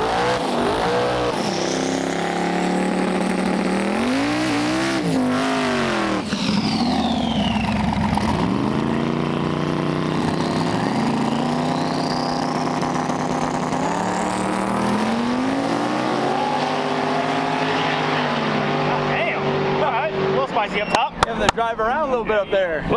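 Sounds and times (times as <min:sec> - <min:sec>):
race car engine running: 0:00.0 - 0:16.4
high turbo whine: 0:00.0 - 0:19.3.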